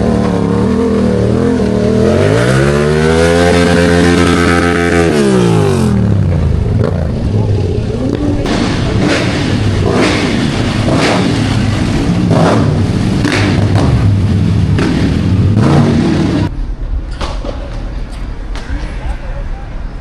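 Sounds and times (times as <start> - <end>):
car engine revving: 0.0 - 16.5
sharp exhaust cracks: 3.4 - 16.5.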